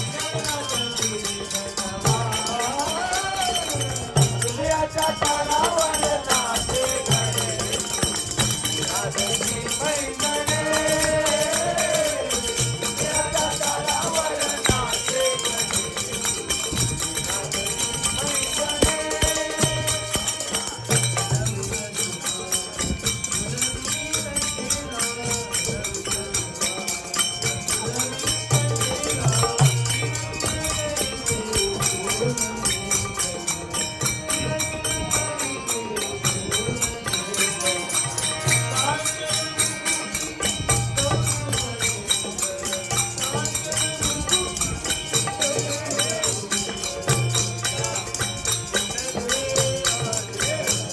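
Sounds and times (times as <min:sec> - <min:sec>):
harmonium notes: 0:00.0 - 0:50.9
jingling percussion: 0:00.0 - 0:50.9
person singing: 0:00.0 - 0:50.9.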